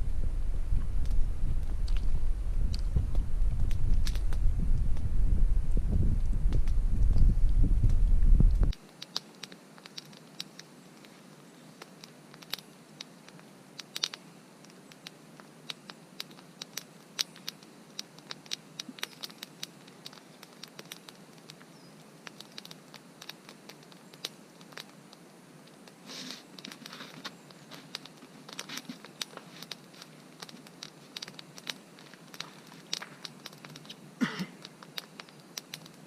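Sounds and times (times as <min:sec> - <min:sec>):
loud low rumble: 0:00.0 - 0:08.7
campfire crackling: 0:00.0 - 0:36.0.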